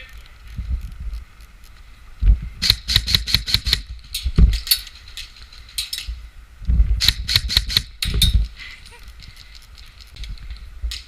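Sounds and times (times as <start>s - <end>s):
airsoft guns firing: 2.6s - 3.9s, 7.0s - 7.9s.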